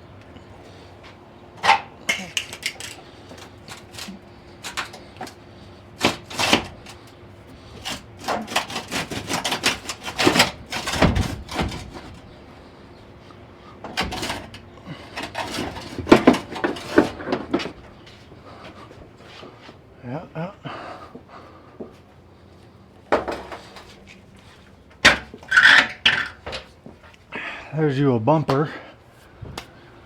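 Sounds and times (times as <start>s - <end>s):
hand tools knocking and clanking: 1.6s - 5.4s, 7.8s - 12.3s, 13.8s - 17.9s, 23.1s - 24.2s, 24.9s - 27.1s.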